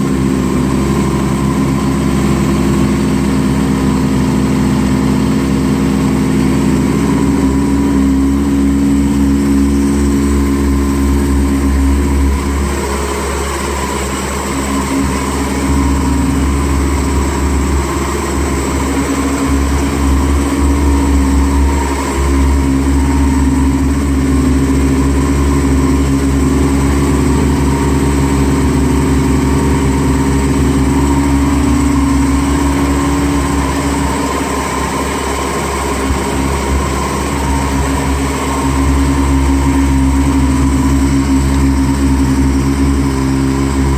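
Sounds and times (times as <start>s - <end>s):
snowmobile engine idling: 0.0s - 43.9s.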